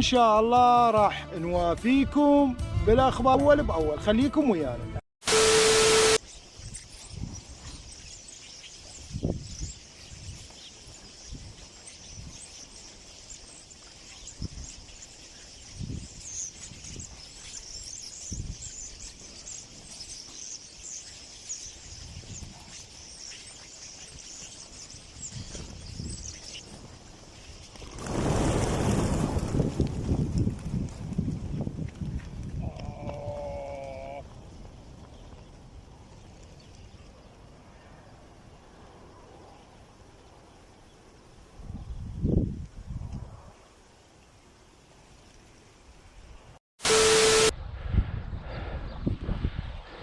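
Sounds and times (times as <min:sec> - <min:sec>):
short steady tone: 0:05.2 - 0:06.2, 0:46.8 - 0:47.6
small birds chirping: 0:06.0 - 0:46.6
wind buffeting microphone: 0:06.5 - 0:08.0, 0:08.9 - 0:13.6, 0:14.2 - 0:19.9, 0:24.1 - 0:37.9, 0:41.5 - 0:43.6, 0:47.5 - 0:50.0.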